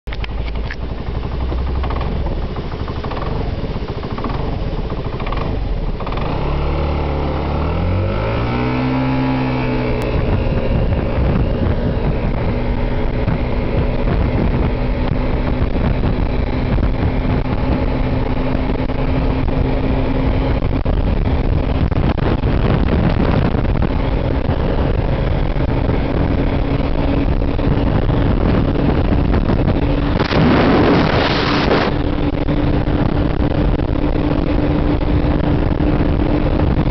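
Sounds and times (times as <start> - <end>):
scooter engine at full throttle: 0.1 - 36.9
wind noise on microphone: 0.1 - 36.9.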